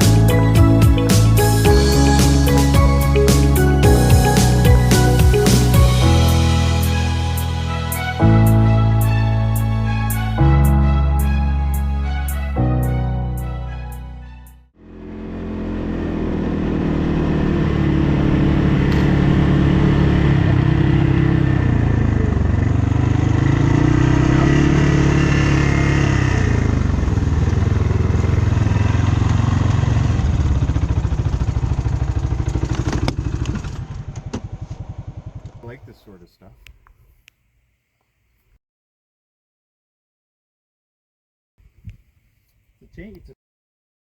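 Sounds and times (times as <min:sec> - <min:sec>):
atv engine running: 0:00.0 - 0:09.2, 0:14.8 - 0:36.1.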